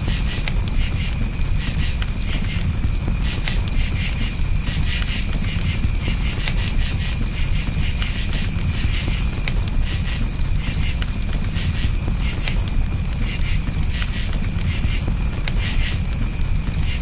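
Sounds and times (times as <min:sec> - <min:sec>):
campfire crackling: 0:00.0 - 0:17.0
crickets chirping: 0:00.0 - 0:17.0.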